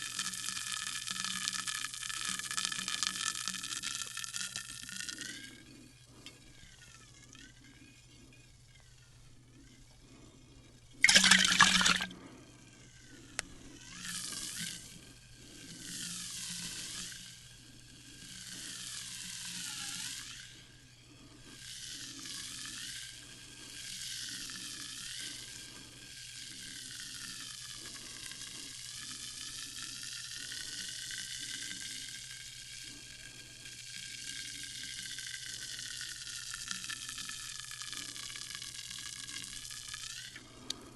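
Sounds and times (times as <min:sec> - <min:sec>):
sparkling water fizzing: 0:11.0 - 0:12.1.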